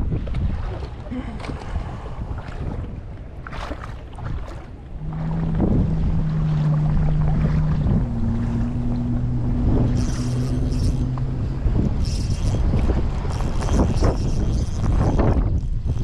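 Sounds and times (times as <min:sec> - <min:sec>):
wind buffeting microphone: 0:00.0 - 0:16.0
outboard motor running: 0:00.2 - 0:16.0.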